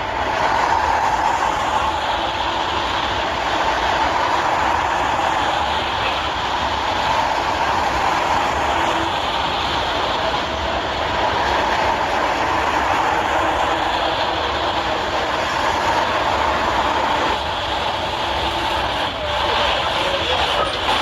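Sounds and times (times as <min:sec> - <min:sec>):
heavy vehicle rumble and rattle: 0:13.6 - 0:21.0.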